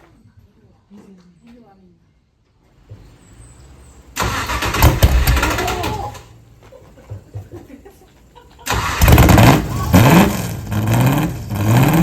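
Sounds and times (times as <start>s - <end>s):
car engine cold-starting: 4.1s - 6.2s, 8.6s - 12.0s.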